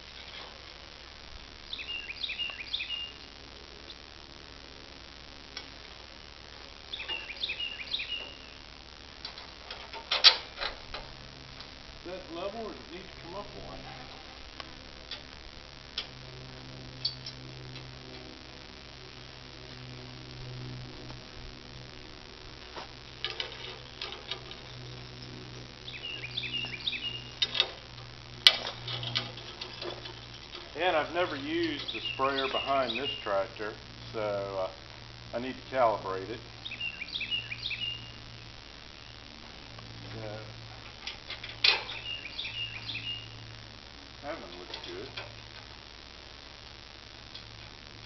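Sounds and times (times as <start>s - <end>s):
steady low hum: 0.0s - 48.0s
bird chirping: 1.6s - 3.3s, 6.9s - 8.7s, 24.8s - 27.6s, 30.7s - 33.6s, 36.6s - 39.3s, 41.5s - 43.5s
clicks and knocks of metal work: 28.5s - 30.7s.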